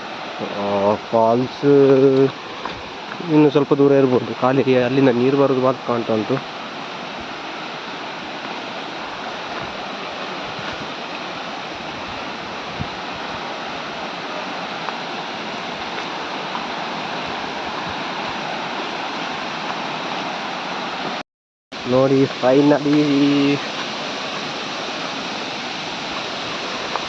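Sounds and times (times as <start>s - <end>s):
waterfall rushing: 0.0s - 21.2s, 21.8s - 27.0s.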